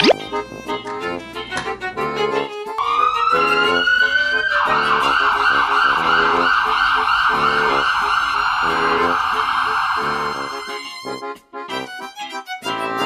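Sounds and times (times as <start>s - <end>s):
cheerful background music: 0.0s - 6.4s, 10.0s - 13.0s
siren wailing and yelping: 2.8s - 10.3s.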